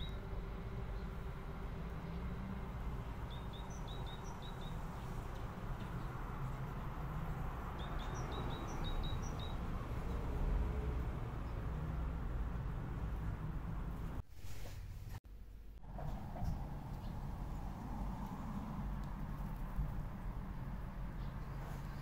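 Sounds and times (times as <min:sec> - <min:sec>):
small songbird chirping: 0:00.0 - 0:00.3, 0:03.1 - 0:06.2, 0:07.7 - 0:10.2.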